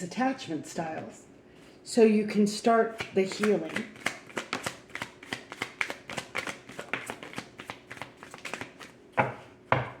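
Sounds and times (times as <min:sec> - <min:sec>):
cards being shuffled: 0:03.0 - 0:08.9.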